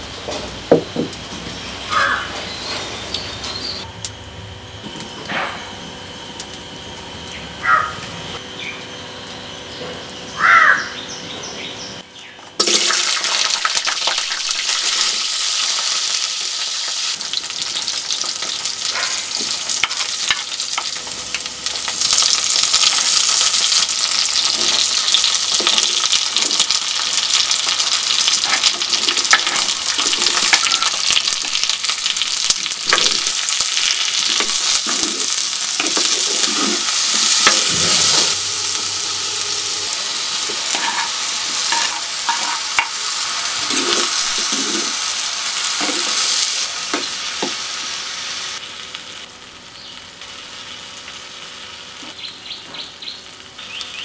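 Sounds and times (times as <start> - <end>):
vegetables sizzling in hot oil: 12.6 - 52.4
wooden spoon scraping: 34.4 - 38.4, 40.4 - 42.9, 43.6 - 45.0.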